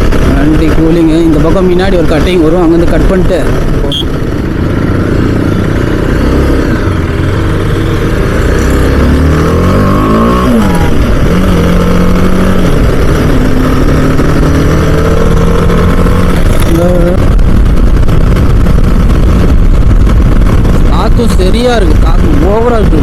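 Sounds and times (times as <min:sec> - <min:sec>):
motorcycle engine running: 0:00.0 - 0:23.0
wind rushing over microphone: 0:06.6 - 0:23.0.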